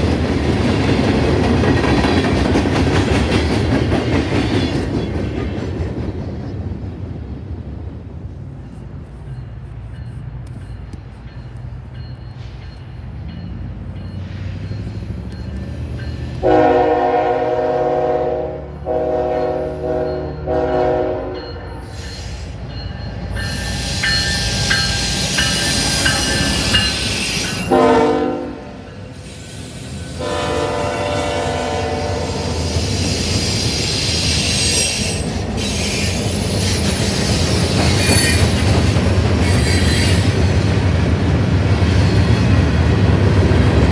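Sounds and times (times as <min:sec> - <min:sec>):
train rumble and wheel noise: 0:00.0 - 0:43.9
locomotive air horn blasts: 0:16.4 - 0:21.7, 0:27.7 - 0:28.9, 0:30.2 - 0:32.6.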